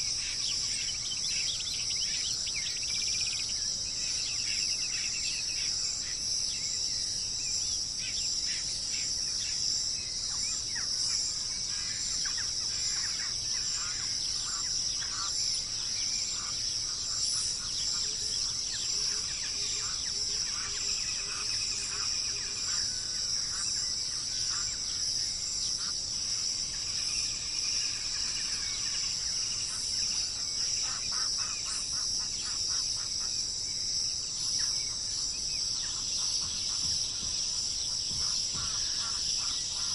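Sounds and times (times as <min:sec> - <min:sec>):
insects droning: 0:00.0 - 0:39.9
birds chirping: 0:34.1 - 0:39.9.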